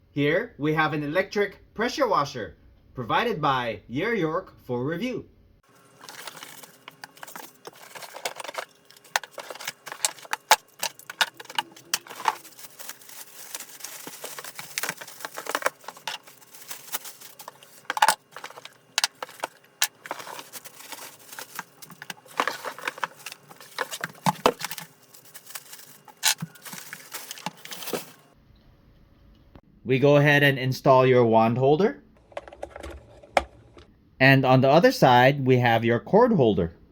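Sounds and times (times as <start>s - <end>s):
packaging rustling: 5.7s - 28.4s
plastic parts clicking and rattling: 5.7s - 28.4s.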